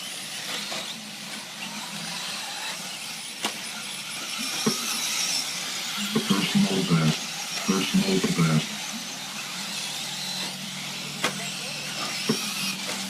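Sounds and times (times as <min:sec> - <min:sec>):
rc truck motors whining: 0:00.0 - 0:13.0
track noise: 0:06.2 - 0:08.8.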